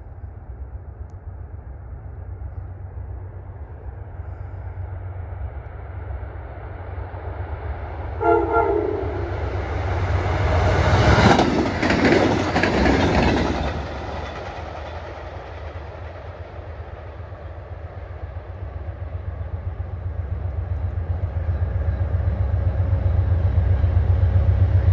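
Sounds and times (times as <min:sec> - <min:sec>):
train horn blast: 0:08.2 - 0:09.8
train wheels clacking over rail joints: 0:10.7 - 0:17.0.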